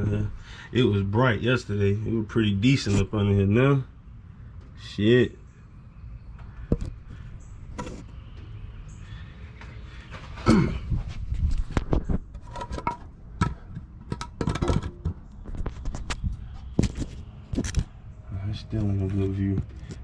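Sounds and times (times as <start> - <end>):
camera knocks and scrapes: 7.7 - 8.2, 11.3 - 17.9.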